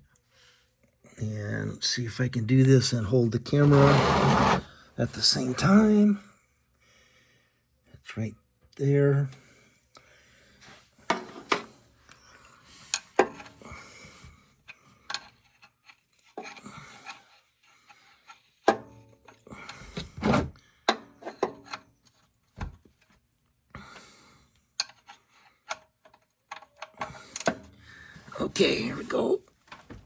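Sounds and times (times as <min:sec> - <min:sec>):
wrench clicking and scraping: 0:24.8 - 0:27.7.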